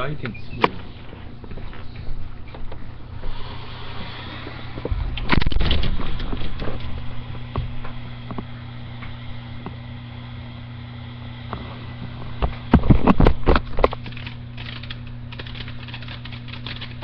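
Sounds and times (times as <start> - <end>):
steady low hum: 0.0 - 17.0
firework hissing and crackling: 3.2 - 7.2.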